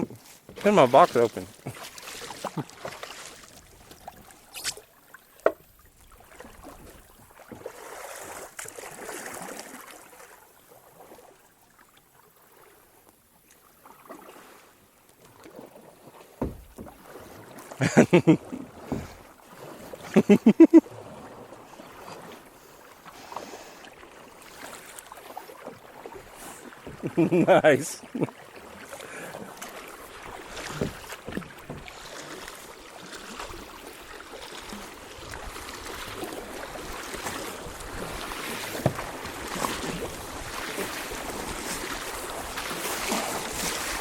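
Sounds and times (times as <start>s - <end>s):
paddle strokes splashing: 0.0s - 12.8s, 13.4s - 44.0s
moving water: 0.0s - 44.0s
sharp knocks: 16.4s - 17.0s.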